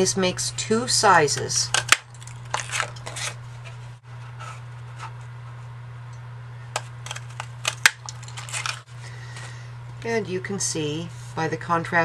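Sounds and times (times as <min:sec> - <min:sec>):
steady low hum: 0:00.0 - 0:12.0
paper rustling: 0:02.2 - 0:05.2, 0:07.0 - 0:08.9.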